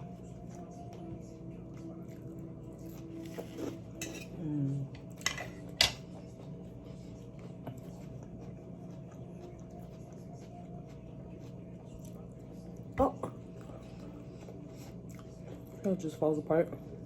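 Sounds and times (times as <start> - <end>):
cutlery clinking on plate: 3.6 - 4.4, 5.1 - 6.0.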